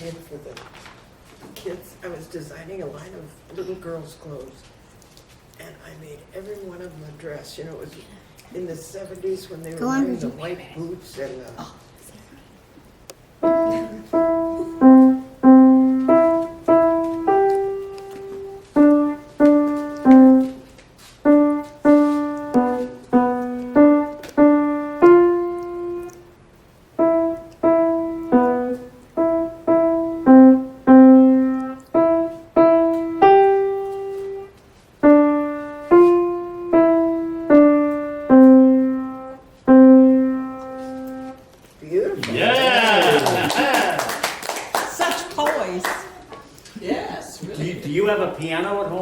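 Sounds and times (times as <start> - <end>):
child playing piano melody: 13.4 - 41.4.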